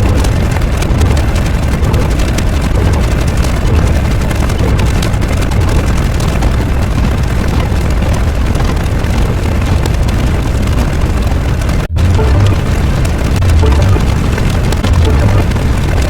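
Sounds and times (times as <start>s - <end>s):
loud low rumbling: 10.2s - 16.0s.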